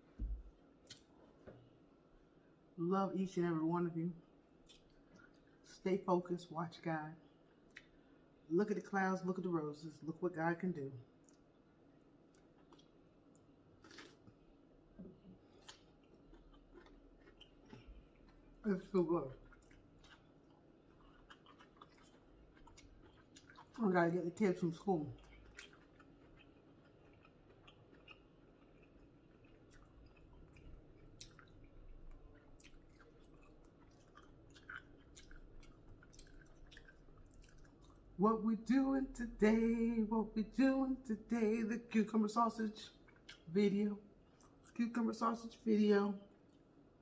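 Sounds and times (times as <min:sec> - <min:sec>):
chewing and mouth clicks: 0:04.6 - 0:05.6, 0:11.2 - 0:11.6, 0:12.3 - 0:14.4, 0:15.5 - 0:23.8, 0:25.1 - 0:38.1, 0:42.9 - 0:43.5, 0:44.3 - 0:44.8, 0:46.3 - 0:46.8.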